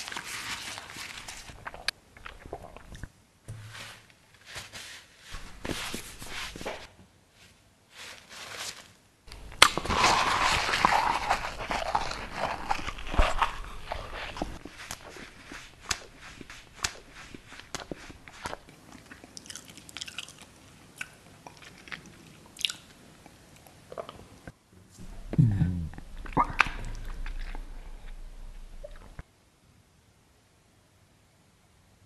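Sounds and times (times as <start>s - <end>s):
crunching and chewing mouth sounds: 1.2s - 3.1s, 9.3s - 24.2s, 25.0s - 29.2s.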